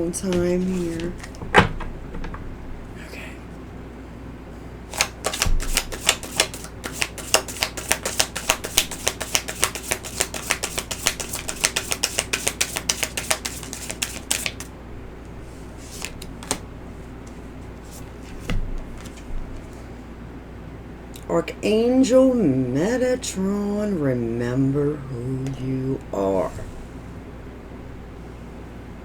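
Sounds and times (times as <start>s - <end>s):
cards being shuffled: 0.6s - 1.4s, 4.9s - 14.7s, 15.8s - 19.8s.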